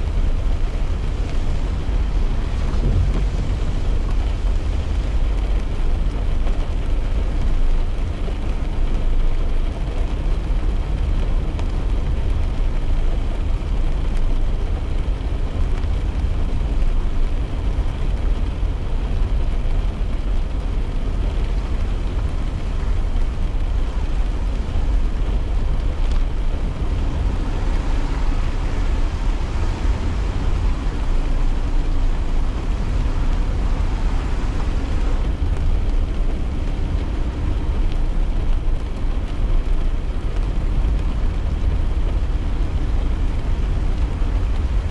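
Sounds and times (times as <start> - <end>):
car cabin road and engine rumble: 0.0 - 44.9
tyre hiss on wet road: 20.4 - 40.4.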